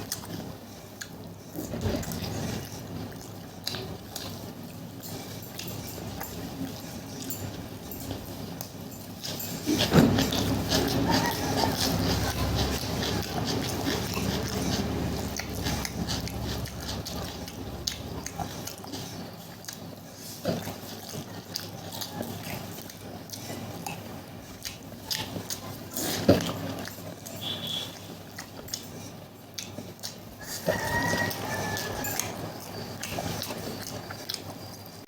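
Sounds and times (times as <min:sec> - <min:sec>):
wet chewing and lip smacking: 0:00.0 - 0:35.0.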